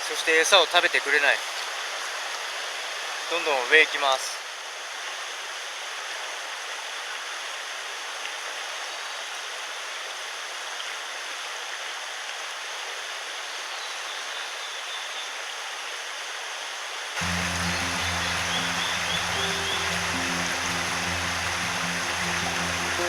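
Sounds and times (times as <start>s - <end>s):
stream water rushing: 17.2s - 23.0s.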